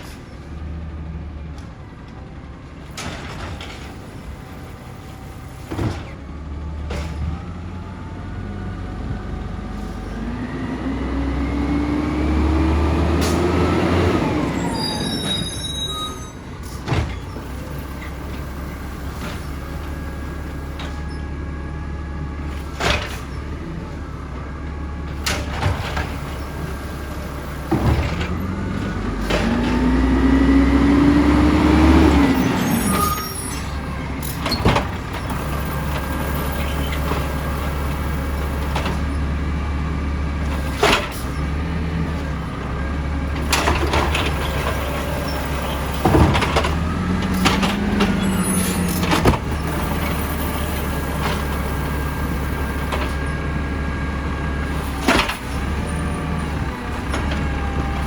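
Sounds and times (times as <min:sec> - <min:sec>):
garbage truck engine running: 0:00.0 - 0:58.0
hydraulics working: 0:06.9 - 0:58.0.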